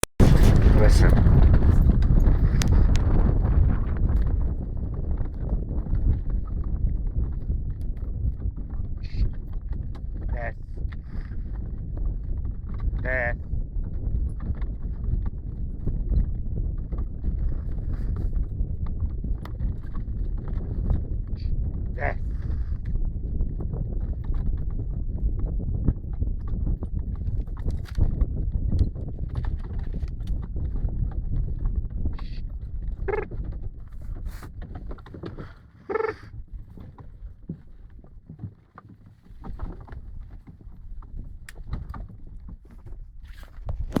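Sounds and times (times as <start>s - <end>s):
steady low rumble: 0.0s - 11.1s
horse hooves clip-clopping: 1.2s - 21.9s, 22.5s - 44.0s
short pitched calls: 35.8s - 36.3s.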